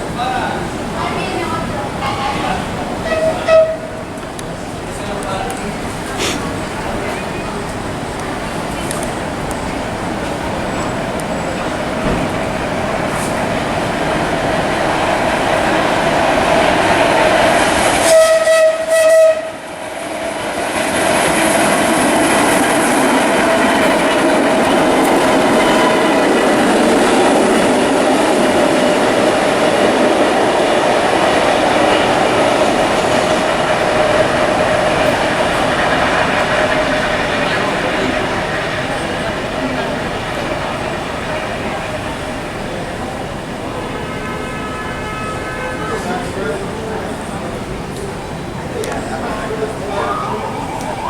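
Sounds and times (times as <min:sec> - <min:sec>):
subway train rumbling past: 0:00.0 - 0:51.0
train horn blasts: 0:02.0 - 0:04.0, 0:18.0 - 0:19.6, 0:44.0 - 0:46.3.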